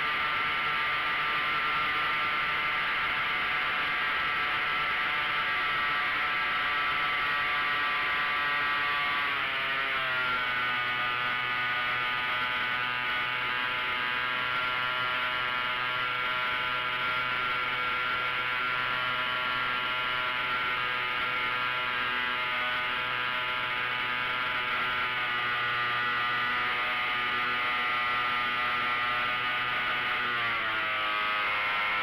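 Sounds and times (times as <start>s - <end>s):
model airplane motor droning: 0.0s - 32.0s.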